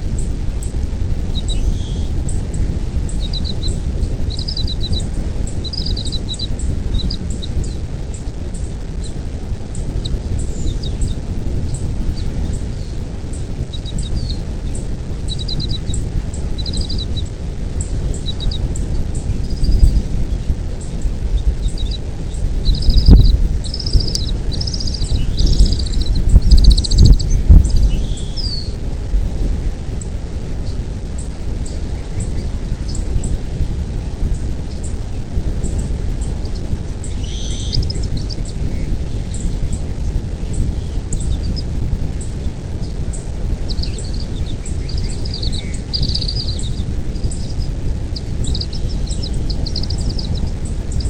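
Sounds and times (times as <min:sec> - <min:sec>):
loud low rumble: 0:00.0 - 0:51.0
eagle chattering calls: 0:01.3 - 0:28.8, 0:36.3 - 0:39.5, 0:42.4 - 0:51.0
high bird chirps: 0:01.3 - 0:28.8, 0:36.2 - 0:39.8, 0:42.3 - 0:51.0.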